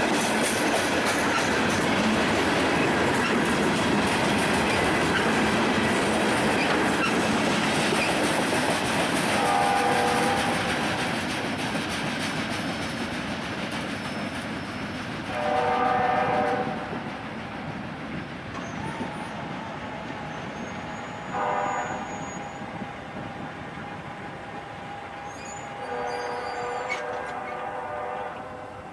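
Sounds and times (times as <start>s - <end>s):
train rumbling on rails: 0.0s - 28.9s
locomotive air horn chords: 9.3s - 11.1s, 15.3s - 17.0s, 20.7s - 23.1s, 23.7s - 28.9s.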